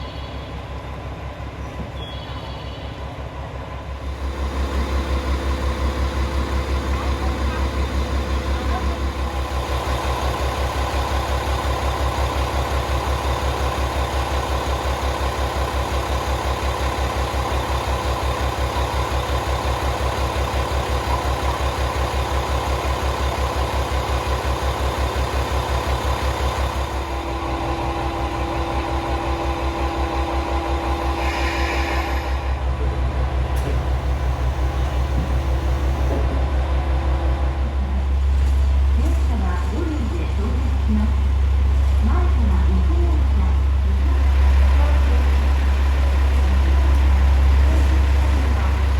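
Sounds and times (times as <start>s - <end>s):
diesel engine idling: 0.0s - 48.9s.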